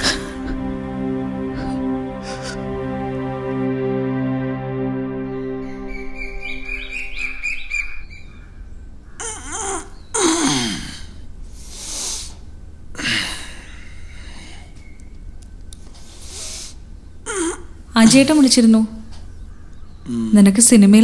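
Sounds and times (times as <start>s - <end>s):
soft background music: 0.0s - 8.5s
low steady hum: 0.0s - 21.0s
harsh falling bird calls: 5.3s - 10.6s, 13.6s - 20.1s.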